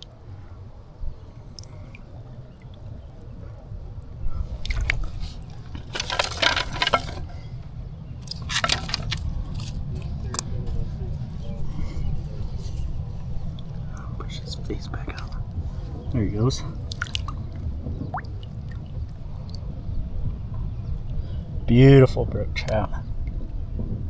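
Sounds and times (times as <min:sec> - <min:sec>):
water splashing: 0:04.6 - 0:07.4, 0:16.6 - 0:19.6
steady low rumble: 0:07.1 - 0:24.0.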